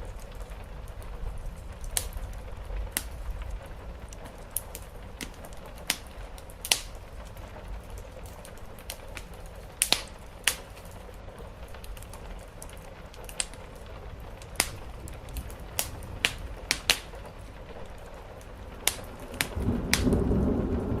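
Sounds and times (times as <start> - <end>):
rain hissing: 0.0 - 21.0
wood fire crackling and popping: 0.0 - 21.0
low rumble: 14.1 - 21.0.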